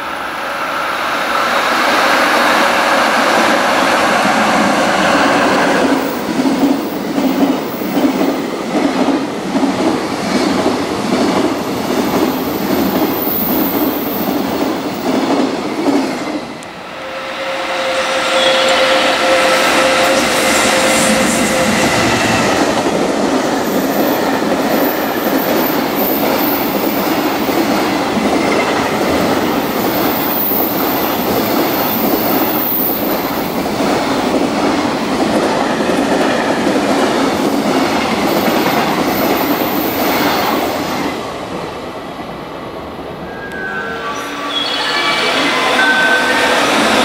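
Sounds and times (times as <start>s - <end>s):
train wheels clattering on rails: 1.4s - 16.5s, 18.6s - 41.1s.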